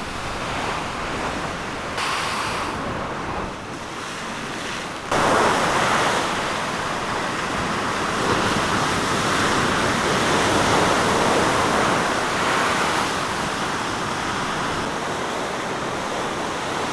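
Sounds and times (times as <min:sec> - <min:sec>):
fast-running water rushing: 0:00.0 - 0:03.1.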